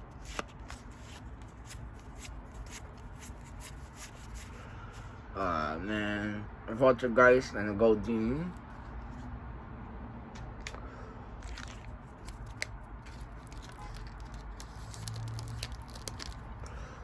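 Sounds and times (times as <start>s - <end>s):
foil wrapper crinkling: 11.4s - 16.8s.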